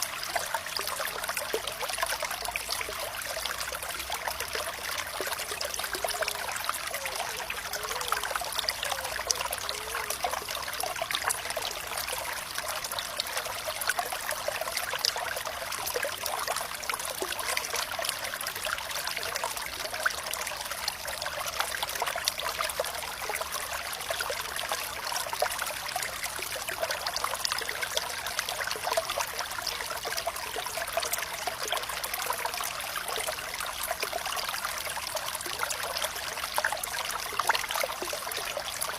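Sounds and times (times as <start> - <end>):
water gurgles: 0.0 - 38.9
water trickling in a stream: 0.0 - 38.9.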